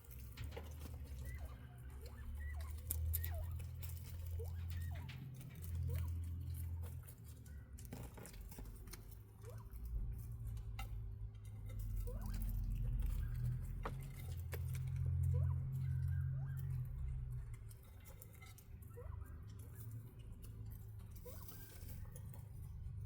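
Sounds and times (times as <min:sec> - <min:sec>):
quail peeping: 0:00.1 - 0:23.0.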